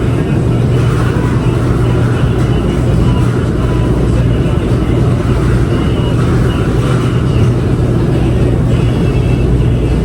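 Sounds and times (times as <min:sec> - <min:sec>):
laundry machines humming: 0:00.0 - 0:10.0.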